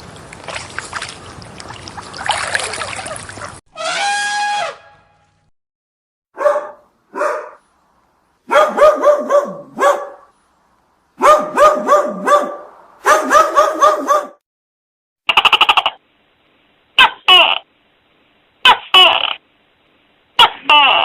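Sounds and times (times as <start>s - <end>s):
dog barking: 6.4s - 7.6s, 8.5s - 10.3s, 11.2s - 14.4s.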